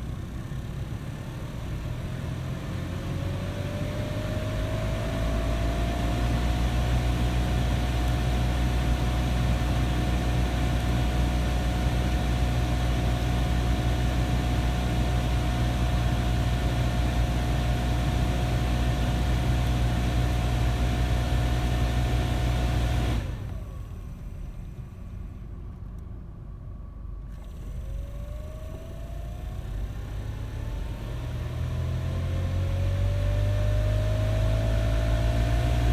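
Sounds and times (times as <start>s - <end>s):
engine whine: 3.0s - 26.1s, 26.7s - 35.9s
car engine running: 27.3s - 35.9s.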